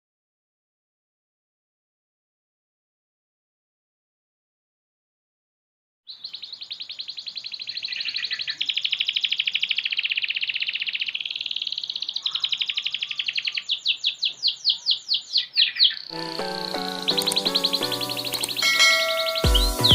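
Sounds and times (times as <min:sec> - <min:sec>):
canary singing trills: 0:06.1 - 0:19.9.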